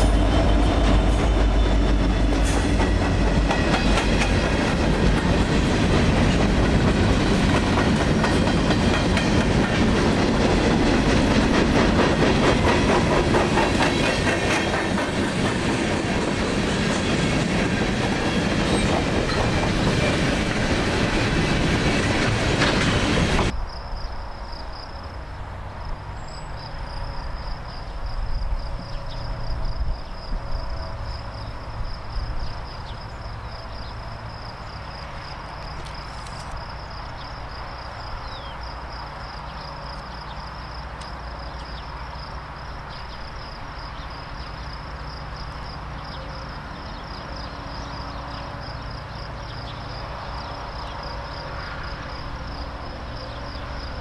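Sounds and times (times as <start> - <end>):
train wheels clacking over rails: 0.0 - 23.5
insects trilling: 0.0 - 54.0.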